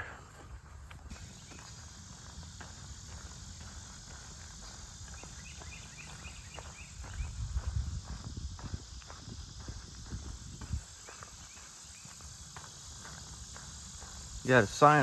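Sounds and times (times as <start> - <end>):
footsteps crunching on trail: 0.0 - 15.0
insect drone: 0.0 - 15.0.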